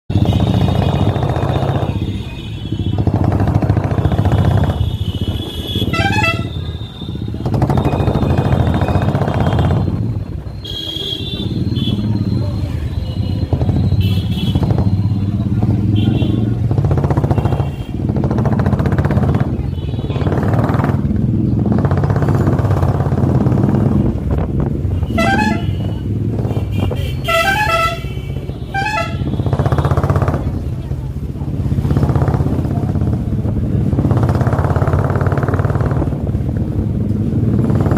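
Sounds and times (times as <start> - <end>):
motorcycle engine running: 0.1 - 37.9
vehicle horn toots: 4.1 - 10.0, 10.6 - 12.3, 24.9 - 29.9.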